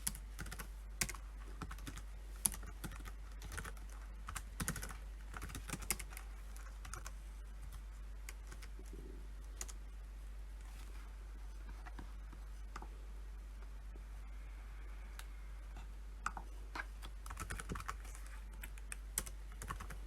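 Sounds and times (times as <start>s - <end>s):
computer keyboard typing: 0.0s - 9.0s, 9.6s - 9.8s, 16.2s - 20.0s
faint low hum: 0.0s - 20.0s.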